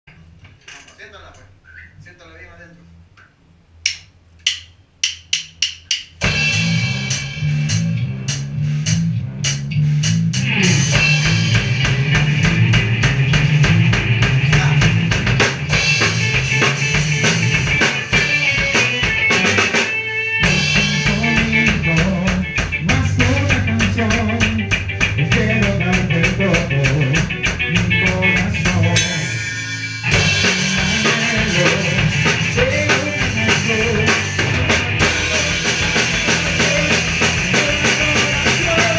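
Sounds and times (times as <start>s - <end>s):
drumstick clicks: 3.2s - 6.2s
ska-punk band playing: 6.1s - 38.9s.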